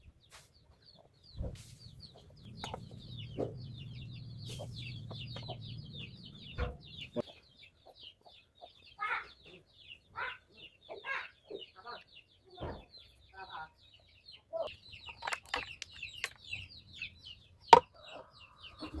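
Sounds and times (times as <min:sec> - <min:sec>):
chickens clucking: 0:00.3 - 0:19.0
high chirping: 0:00.7 - 0:12.2, 0:13.0 - 0:19.0.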